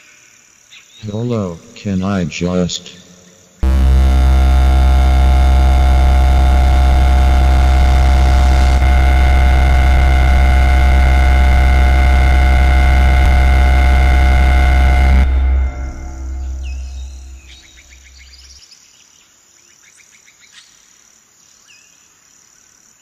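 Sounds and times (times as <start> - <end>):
loud distorted droning noise: 3.6 - 18.5.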